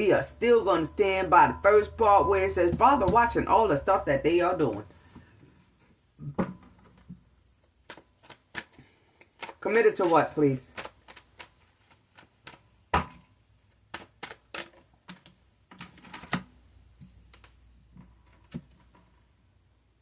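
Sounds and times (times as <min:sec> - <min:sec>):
cards clicking and tapping: 0:07.8 - 0:16.4.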